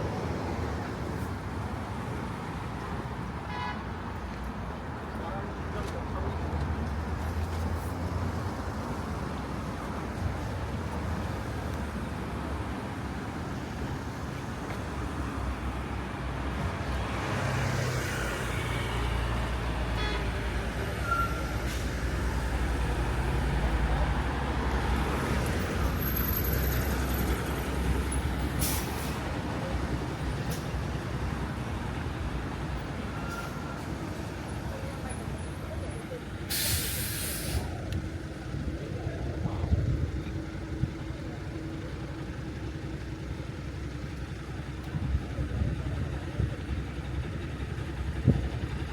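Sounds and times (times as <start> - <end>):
heavy vehicle engine rumbling: 0.0 - 48.9
air brake hiss: 28.6 - 29.2, 36.5 - 37.8.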